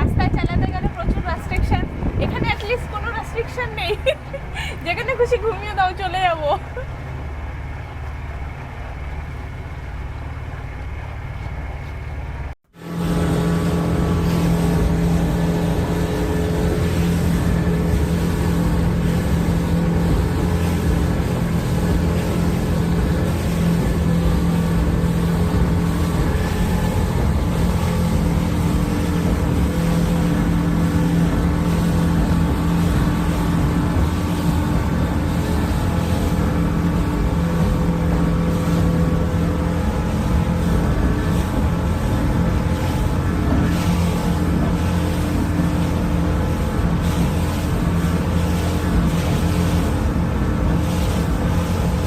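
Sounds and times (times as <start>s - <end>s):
motorboat engine running: 0.0s - 52.0s
water rushing around hull: 0.0s - 52.0s.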